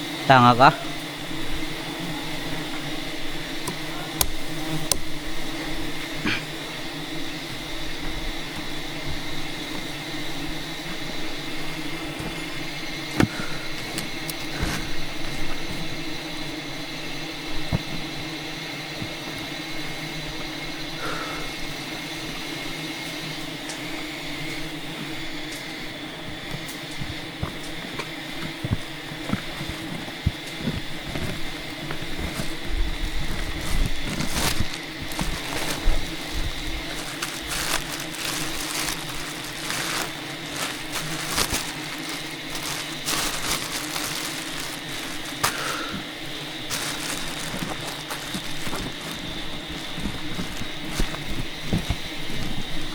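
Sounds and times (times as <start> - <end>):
bee swarm droning: 0.0 - 52.9
knocks and crackles: 26.4 - 52.9.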